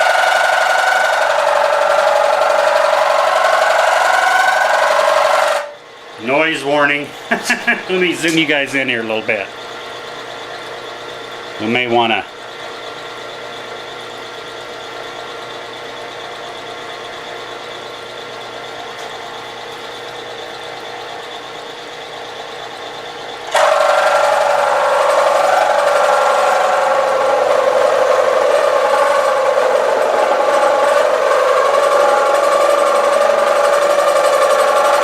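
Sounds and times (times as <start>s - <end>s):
milling cutter cutting noise: 0.0s - 13.4s, 23.0s - 35.0s
milling machine spindle running: 0.0s - 35.0s.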